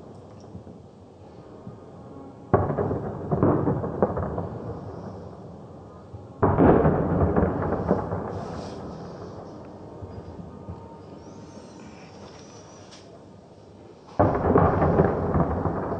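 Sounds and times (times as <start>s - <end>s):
fireworks bangs: 2.5s - 5.8s, 6.4s - 13.2s, 14.0s - 15.9s
fireworks crackling: 6.4s - 15.9s.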